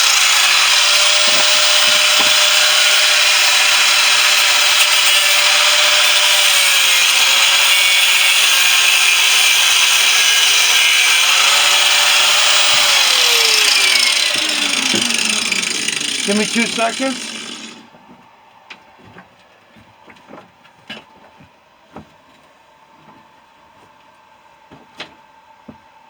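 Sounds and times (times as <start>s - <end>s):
power tool grinding steel: 0.0s - 17.9s
power tool motor whine: 0.0s - 17.9s.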